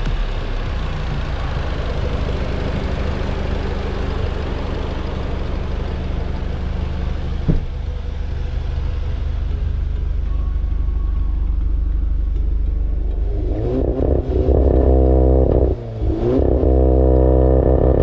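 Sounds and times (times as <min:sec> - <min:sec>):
car engine droning: 0:00.0 - 0:18.0
exhaust pop: 0:07.3 - 0:08.1.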